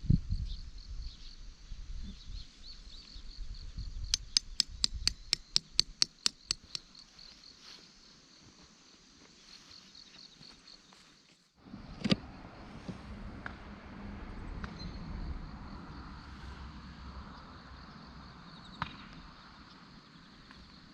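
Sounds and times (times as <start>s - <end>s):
sharp clicks: 4.1s - 6.9s
insects chirring: 4.1s - 7.8s.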